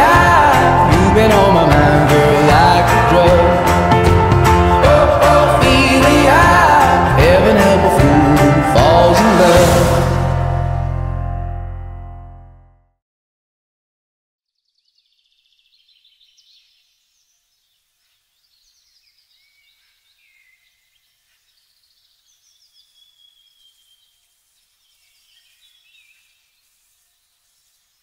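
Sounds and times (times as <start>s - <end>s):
small birds chirping and trilling: 14.5s - 28.0s.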